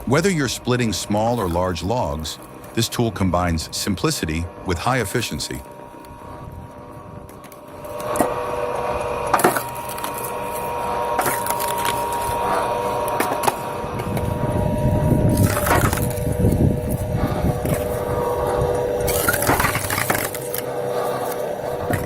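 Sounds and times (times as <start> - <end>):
wood splitter mechanical hum: 0.0 - 22.0
logs cracking and splintering: 7.2 - 22.0.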